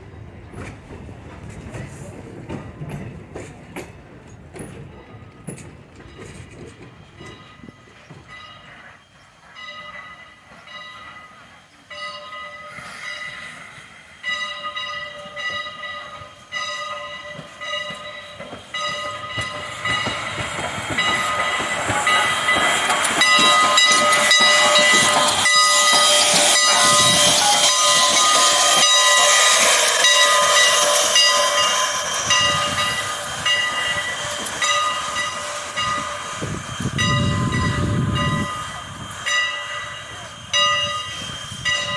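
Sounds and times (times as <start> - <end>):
rail clicks: 0.0 - 41.9
train wheels squealing on rails: 0.0 - 41.9
rushing hiss: 12.6 - 14.4, 18.6 - 41.6.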